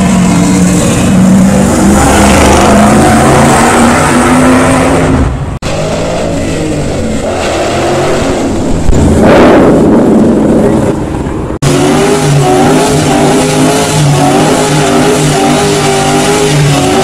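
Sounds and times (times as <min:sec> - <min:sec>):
dense rushing noise: 0:00.0 - 0:13.1
car engine at high revs: 0:00.0 - 0:17.0.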